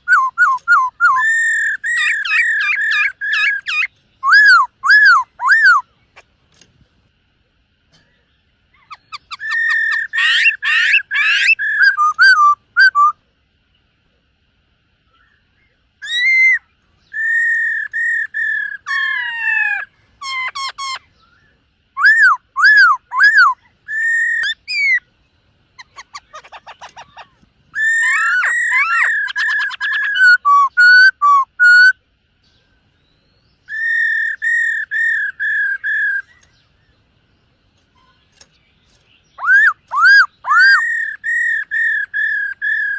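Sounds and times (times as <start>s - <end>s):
bird singing whistled phrases: 0.0s - 5.9s, 8.8s - 13.2s, 16.0s - 25.0s, 25.8s - 32.0s, 33.0s - 36.6s, 39.3s - 42.9s.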